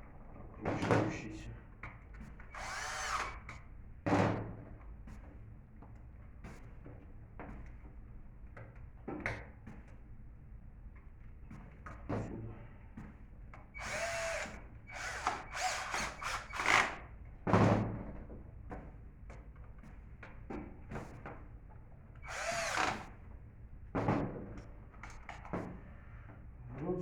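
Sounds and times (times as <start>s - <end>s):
power drill running: 2.5s - 3.6s, 13.8s - 17.0s, 22.2s - 23.1s.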